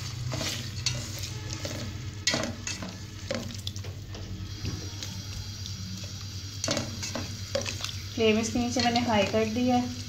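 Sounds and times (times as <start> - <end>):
spatula scraping a metal pot: 0.0 - 3.6
meat sizzling in oil: 0.0 - 10.0.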